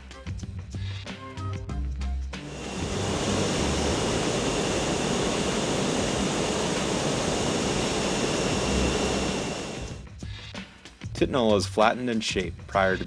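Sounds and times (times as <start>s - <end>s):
faint high whine: 2.4s - 10.0s
industrial machine roaring: 2.4s - 10.0s.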